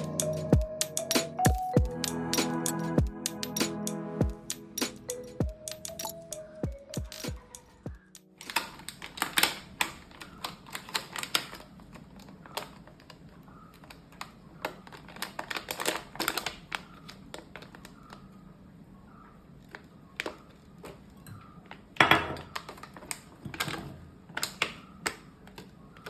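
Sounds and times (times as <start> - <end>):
background music: 0.0 - 8.5
sharp clicks and taps: 4.5 - 8.6.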